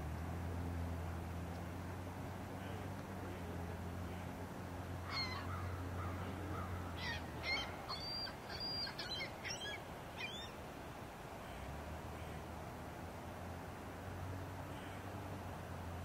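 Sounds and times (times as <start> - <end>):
bird calling: 5.0 - 10.6.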